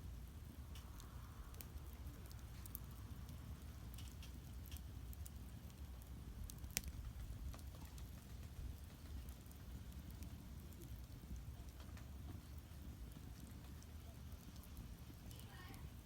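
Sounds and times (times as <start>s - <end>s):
firewood crackling and popping: 0.0s - 16.0s
low steady rumble: 0.0s - 16.0s.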